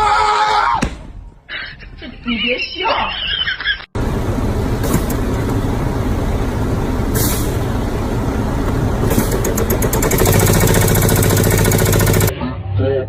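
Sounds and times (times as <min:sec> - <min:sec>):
road noise: 0:04.0 - 0:12.2
heavy vehicle engine running: 0:04.0 - 0:12.3
short hiss: 0:07.1 - 0:07.6.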